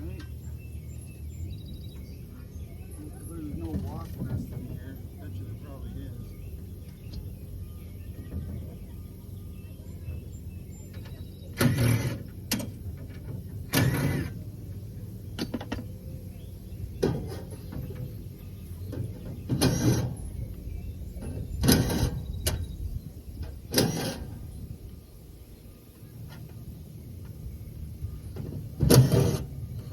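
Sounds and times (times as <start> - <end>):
power tool motor bursts: 11.6 - 12.3, 13.7 - 14.4.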